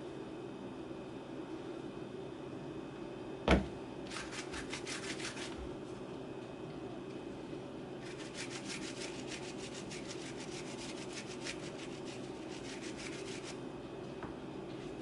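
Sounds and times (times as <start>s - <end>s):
brush scratching back and forth: 4.1s - 5.7s, 8.0s - 13.6s.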